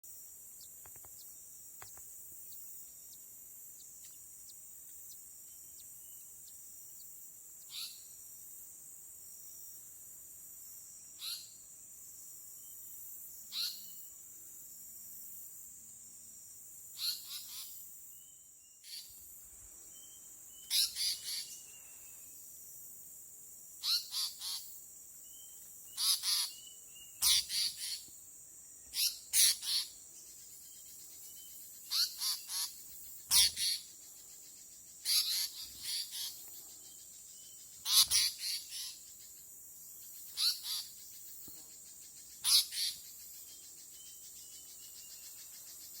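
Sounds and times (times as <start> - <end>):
small bird calling: 7.6 - 8.2, 11.2 - 11.6, 13.5 - 14.0, 17.0 - 17.8, 18.8 - 19.2, 20.0 - 22.3, 23.8 - 28.2, 28.8 - 39.4, 40.1 - 46.0.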